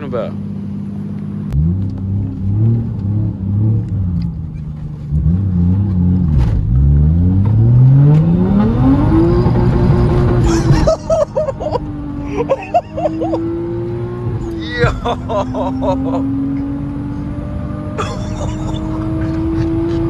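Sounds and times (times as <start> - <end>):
turbocharged engine revving: 5.0 - 20.0.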